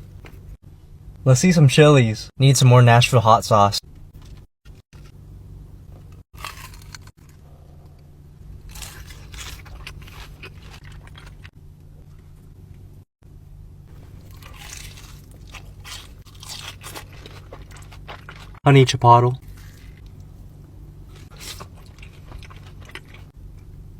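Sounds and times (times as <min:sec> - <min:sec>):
low hum: 0:00.0 - 0:23.9
crisp crunching of food: 0:06.0 - 0:07.5, 0:08.6 - 0:11.5, 0:13.9 - 0:18.6, 0:19.4 - 0:23.3
soft chewing: 0:08.7 - 0:12.4, 0:13.9 - 0:18.6, 0:19.4 - 0:23.9.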